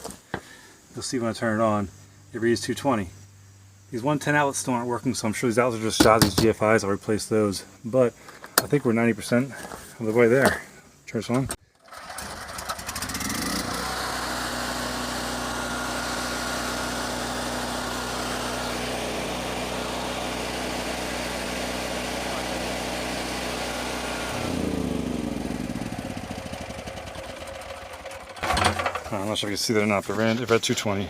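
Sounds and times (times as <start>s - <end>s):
portable generator engine running: 11.7s - 29.3s.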